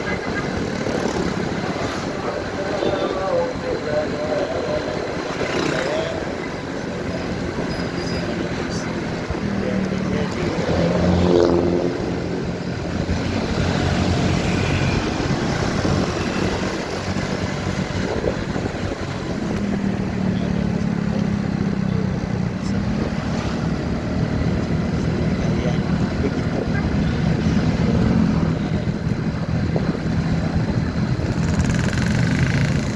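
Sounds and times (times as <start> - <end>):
motorcycle engine: 0.0 - 32.9
passing vehicle engine: 0.0 - 32.9
wind noise: 10.4 - 20.3, 24.7 - 32.9.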